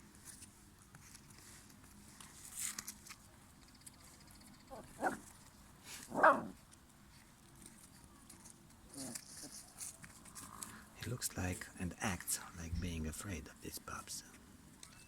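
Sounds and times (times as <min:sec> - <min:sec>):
puppies barking: 0:06.1 - 0:06.6.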